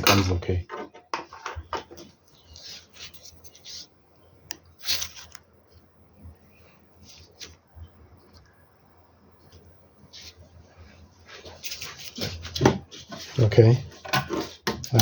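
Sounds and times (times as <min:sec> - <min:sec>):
electronic parts being handled: 0:00.0 - 0:05.9.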